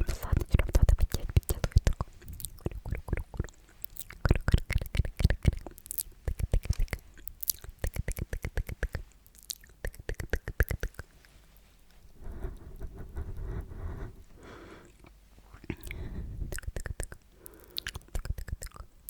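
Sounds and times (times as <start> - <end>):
wet mouth clicks and smacks: 0.0 - 11.1, 15.0 - 18.9.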